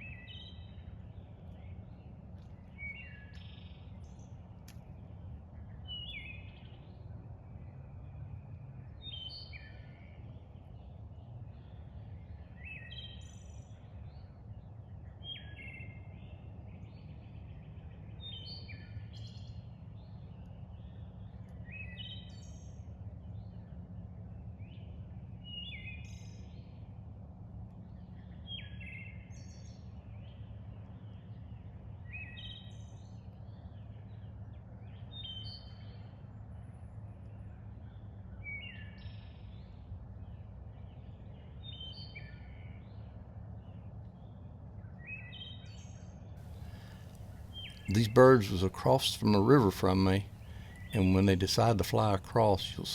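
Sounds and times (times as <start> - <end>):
songbird singing: 46.6 - 52.9.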